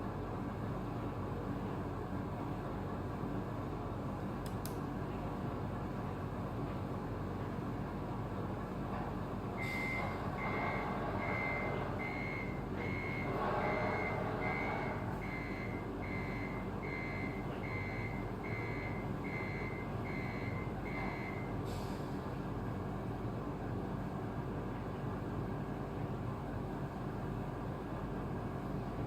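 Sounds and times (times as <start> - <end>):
steady low hum: 0.0 - 29.0
high reversing beeps: 9.6 - 21.6.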